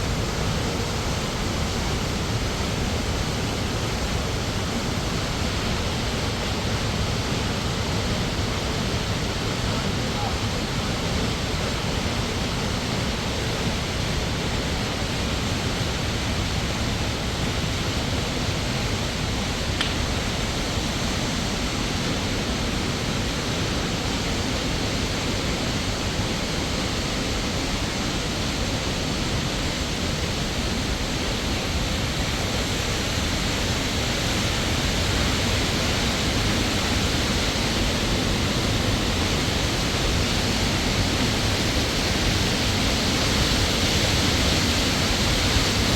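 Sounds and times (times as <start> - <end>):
waterfall rushing: 0.0 - 45.9
faint click: 19.8 - 20.0.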